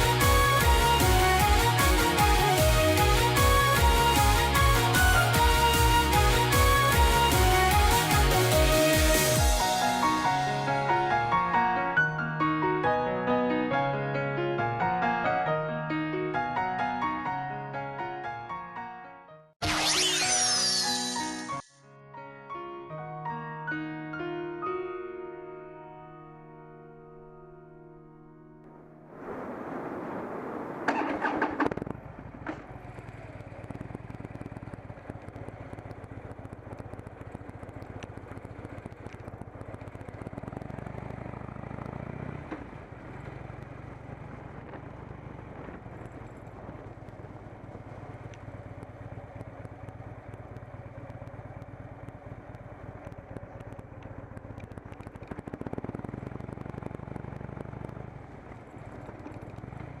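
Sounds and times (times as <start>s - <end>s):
motorcycle engine running: 0.0s - 10.5s, 31.2s - 60.0s.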